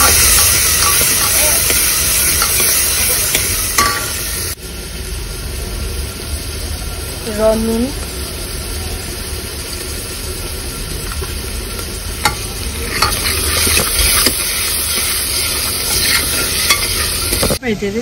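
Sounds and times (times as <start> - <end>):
vegetables sizzling in a pot: 0.0 - 17.8
metal spoon clinking on pot: 12.2 - 17.6.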